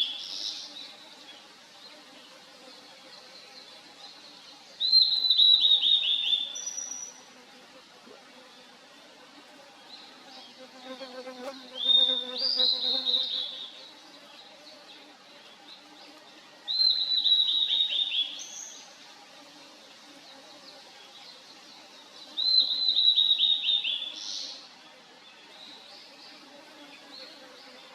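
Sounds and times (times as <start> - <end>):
bird singing whistled notes: 4.8 - 7.2, 16.7 - 18.7, 22.4 - 24.4.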